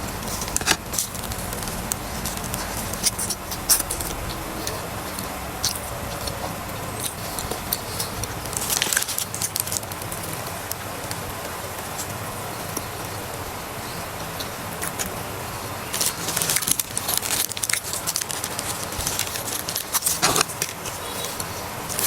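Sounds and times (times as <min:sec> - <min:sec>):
chewing crispy food crunches: 0:15.9 - 0:22.0.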